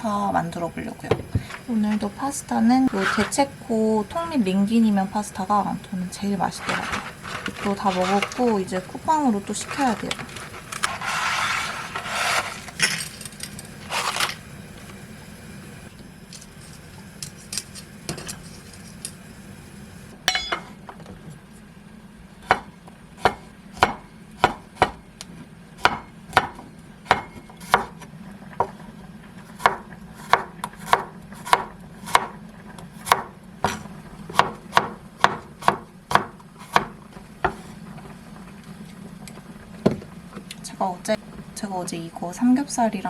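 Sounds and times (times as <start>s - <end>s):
low steady hum: 0.0s - 43.0s
knife chopping on wooden board: 22.4s - 25.0s, 25.8s - 28.0s, 29.6s - 32.3s, 33.0s - 37.6s.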